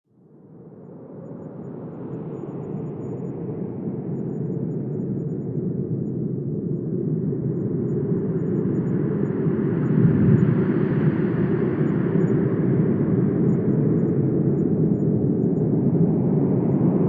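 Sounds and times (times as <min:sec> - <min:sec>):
wind blowing: 0:09.7 - 0:11.4.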